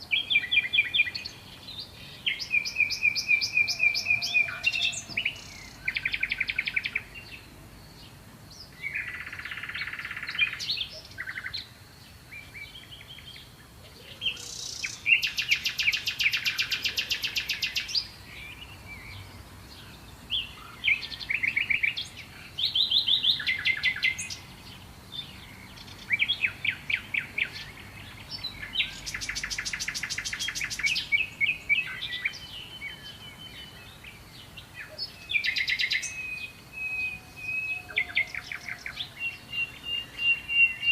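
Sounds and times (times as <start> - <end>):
songbirds chirping and trilling: 0.0 - 40.9.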